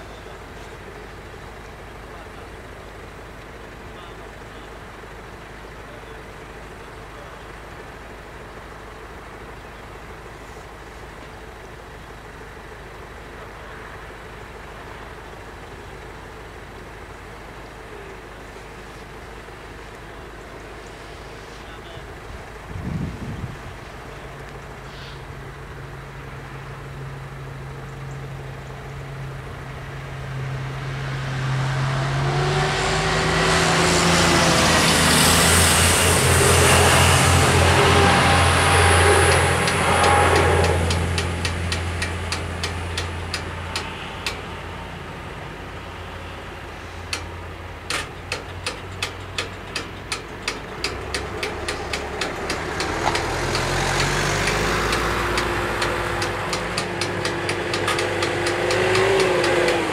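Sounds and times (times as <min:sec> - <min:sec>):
vehicle engines idling: 0:00.0 - 0:59.9
high whine: 0:29.9 - 0:47.5
train passing: 0:30.1 - 0:59.9.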